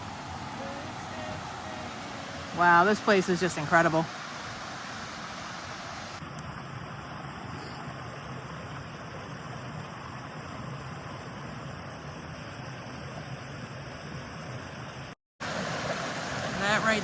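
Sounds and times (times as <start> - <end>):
water rushing in a creek: 0.0 - 17.0.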